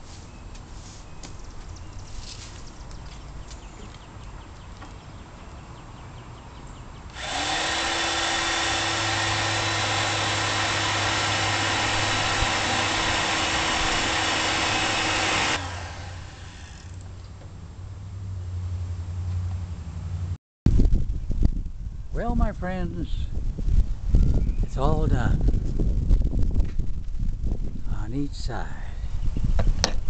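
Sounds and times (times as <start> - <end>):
electric drill boring metal: 7.1 - 17.0.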